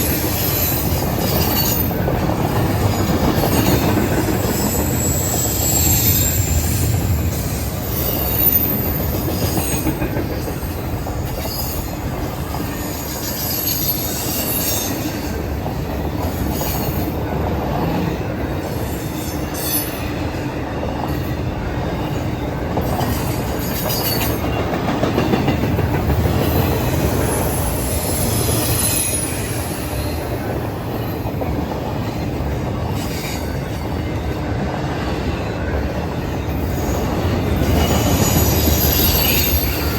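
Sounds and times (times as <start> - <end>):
freight cars rumbling on rails: 0.0 - 39.9
high-pitched wheel squeal: 4.4 - 7.0, 12.8 - 15.0, 27.3 - 30.2, 36.8 - 39.9.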